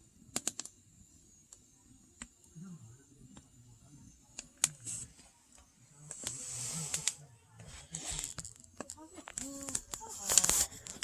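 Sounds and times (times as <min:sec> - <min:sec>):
fire hissing rustle: 0:04.4 - 0:05.4, 0:06.0 - 0:11.0
firewood crackling and popping: 0:08.1 - 0:11.0.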